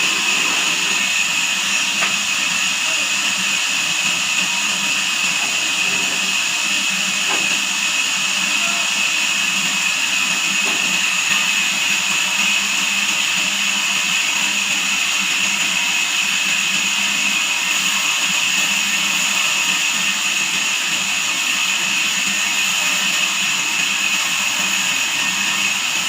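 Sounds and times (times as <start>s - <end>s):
high-pitched whine: 0.0s - 9.2s
band sawmill running: 0.0s - 26.0s.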